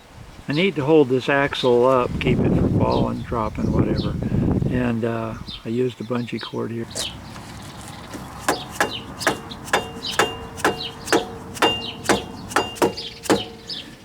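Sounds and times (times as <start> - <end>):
metallic clicks with ringing: 8.1 - 14.0.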